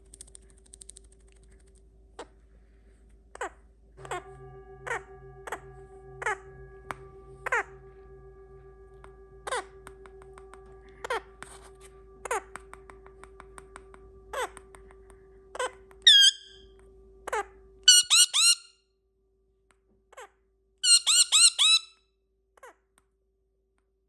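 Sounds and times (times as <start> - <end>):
faint steady hum: 0.0 - 18.4
parrot squeaky calls: 15.6 - 16.6, 17.3 - 18.7, 20.2 - 22.0.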